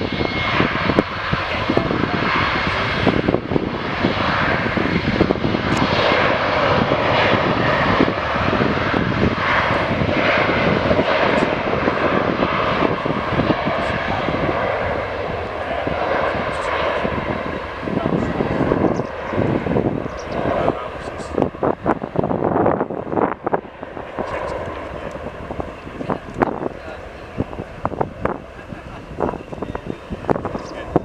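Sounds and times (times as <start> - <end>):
jet engines roaring: 0.0 - 31.0.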